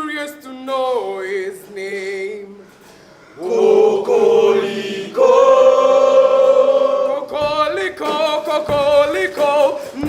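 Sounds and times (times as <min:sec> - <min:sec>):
choir singing long held notes: 0:03.4 - 0:07.3.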